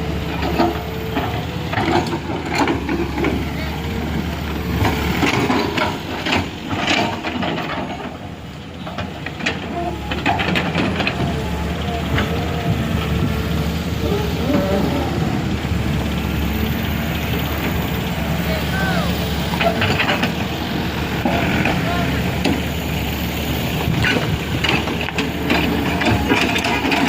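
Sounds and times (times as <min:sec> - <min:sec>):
heavy vehicle engine running: 0:00.0 - 0:27.0
indistinct voices: 0:00.4 - 0:04.6, 0:08.8 - 0:23.1.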